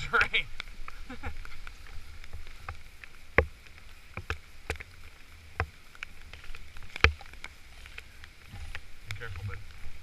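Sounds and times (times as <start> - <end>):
sharp clicks and knocks: 2.3 - 4.9, 5.6 - 9.8.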